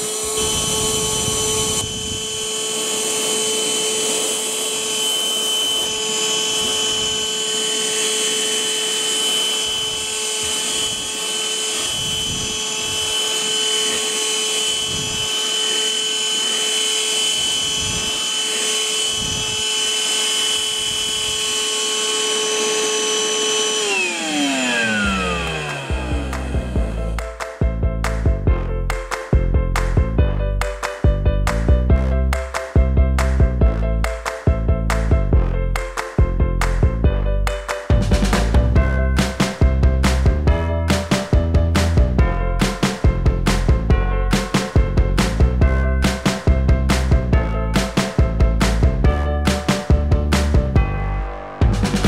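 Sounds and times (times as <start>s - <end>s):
handheld vacuum cleaner whine: 0.0s - 27.2s
short low sounds: 24.9s - 27.2s.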